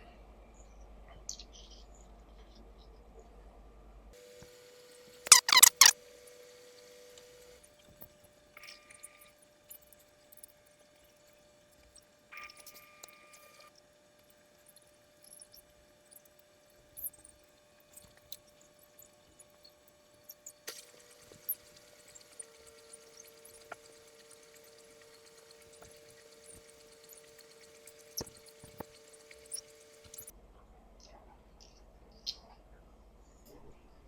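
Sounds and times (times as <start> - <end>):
faint electrical hum: 0.0 - 34.0
clicks of miniature figures: 5.3 - 5.9.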